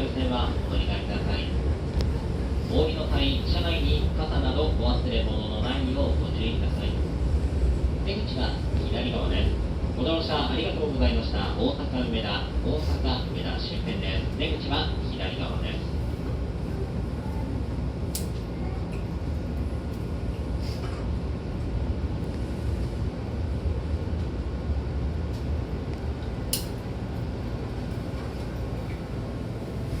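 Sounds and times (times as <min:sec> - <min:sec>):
train car rumble: 0:00.0 - 0:30.0
sharp short click: 0:26.5 - 0:26.8.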